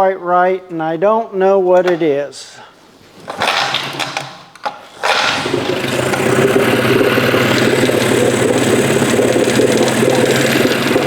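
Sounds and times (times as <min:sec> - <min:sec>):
outboard motor cranking and idling: 0:03.1 - 0:11.0.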